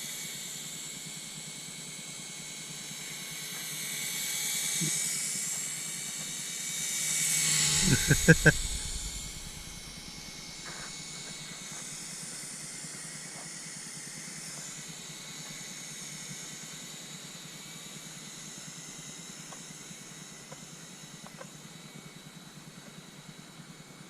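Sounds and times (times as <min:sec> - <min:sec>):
wind hiss: 0:07.7 - 0:10.8.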